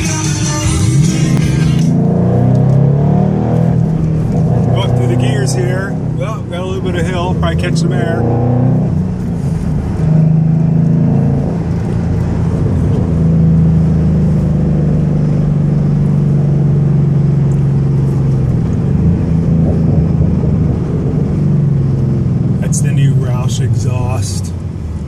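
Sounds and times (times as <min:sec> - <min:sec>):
car exhaust note shifting gears: 0:00.0 - 0:25.0.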